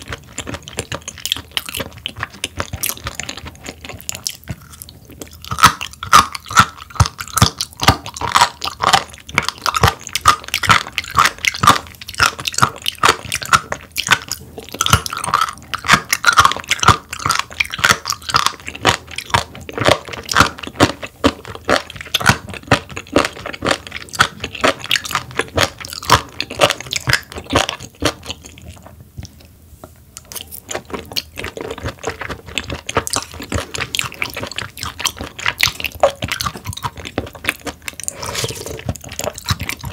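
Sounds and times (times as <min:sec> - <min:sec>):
chewing with crisp mouth clicks: 0:00.0 - 0:29.5, 0:30.2 - 0:39.9.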